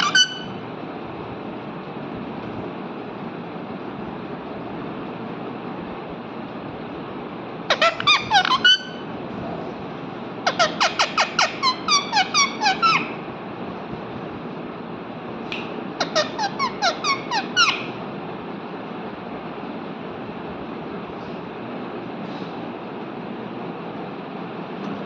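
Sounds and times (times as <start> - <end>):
parrot sharp chirps: 0.0 - 0.6, 7.7 - 9.0, 10.5 - 13.2, 16.0 - 18.0.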